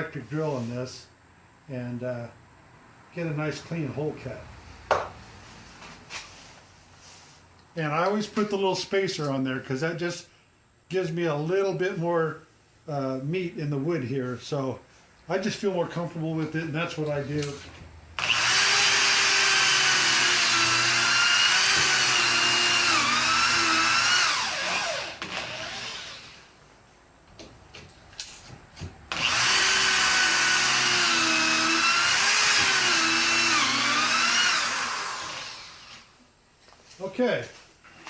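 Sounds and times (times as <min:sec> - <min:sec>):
electric drill boring wood: 0:18.2 - 0:26.5, 0:29.1 - 0:36.1.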